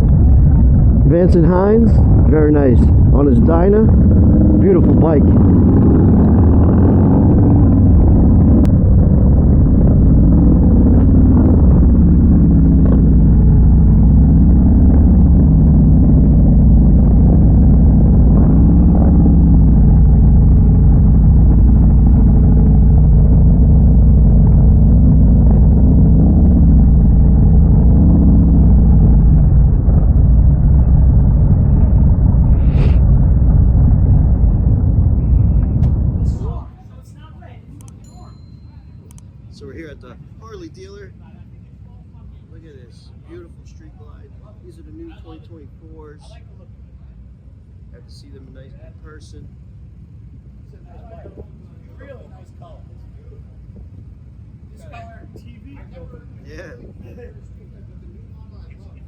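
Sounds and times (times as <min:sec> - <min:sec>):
motorcycle engines droning: 0:00.0 - 0:59.0.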